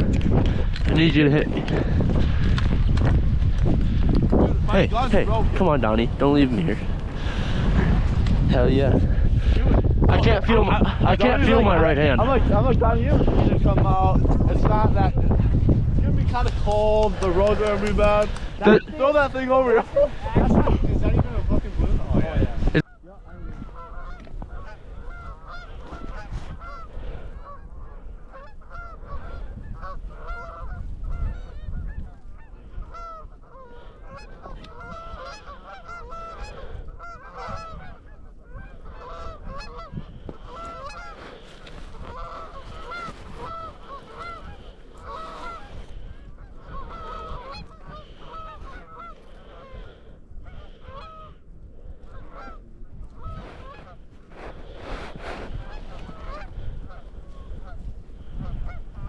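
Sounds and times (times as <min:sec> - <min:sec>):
low wind rumble: 0:00.0 - 0:59.0
geese honking: 0:17.4 - 0:20.7, 0:22.8 - 0:51.4, 0:52.0 - 0:59.0.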